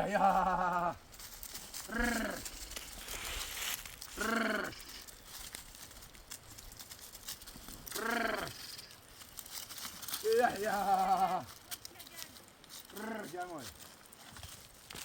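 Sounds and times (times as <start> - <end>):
sheep bleating: 0.0 - 1.0, 1.9 - 2.5, 4.2 - 5.0, 7.9 - 8.9, 10.3 - 11.5.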